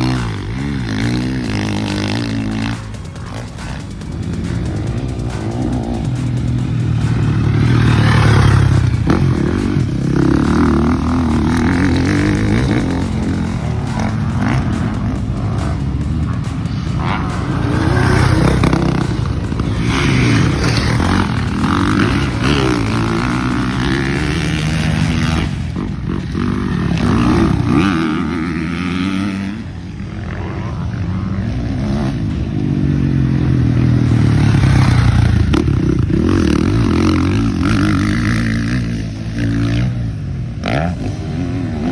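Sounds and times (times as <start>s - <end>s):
motocross bike engines revving: 0.0s - 41.9s.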